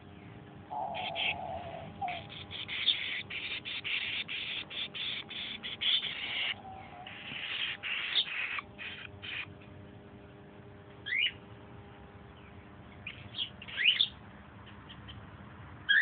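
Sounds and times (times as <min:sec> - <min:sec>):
baby bird cheeping: 0:00.7 - 0:09.6, 0:11.0 - 0:11.4, 0:13.0 - 0:15.2.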